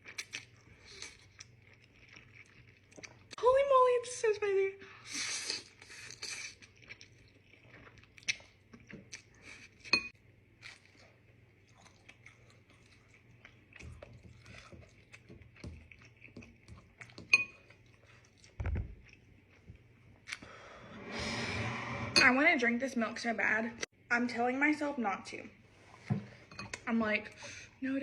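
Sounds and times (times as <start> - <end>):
person chewing noodles: 0.0 - 3.3, 5.1 - 20.6.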